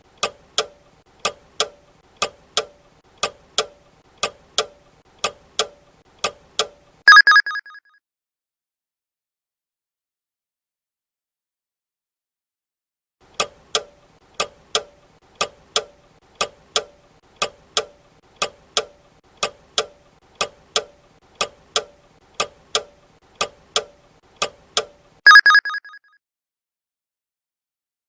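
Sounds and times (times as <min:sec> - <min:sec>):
clock ticking: 0:00.1 - 0:07.5, 0:13.4 - 0:26.0
alarm bell ring: 0:07.1 - 0:07.8, 0:25.3 - 0:26.0.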